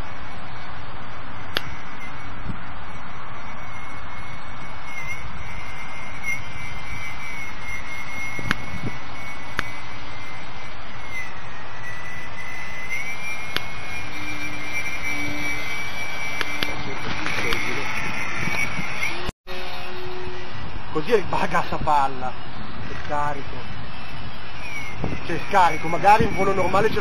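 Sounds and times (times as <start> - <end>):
electric motor and propeller whining: 0.0 - 27.0
wind rumble on microphone: 0.0 - 27.0
sharp clicks: 1.5 - 1.8, 8.3 - 8.9, 9.5 - 9.8, 13.4 - 13.9, 16.3 - 19.1.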